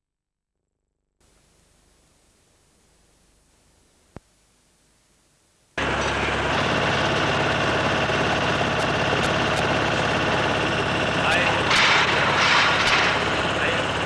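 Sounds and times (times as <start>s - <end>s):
demolition machinery engine: 5.8s - 14.0s.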